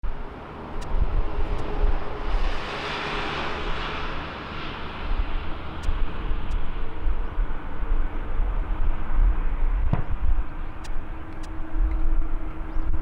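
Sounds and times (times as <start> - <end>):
wind on microphone: 0.0 - 13.0
jet airliner engine rush: 0.1 - 13.0.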